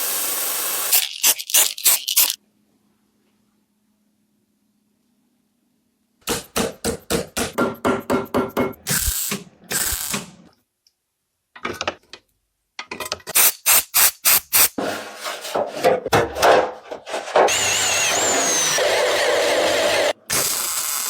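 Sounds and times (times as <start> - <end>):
hand tool quick strokes: 13.4 - 15.4
hand tool scraping strokes: 13.4 - 16.0, 17.0 - 20.1.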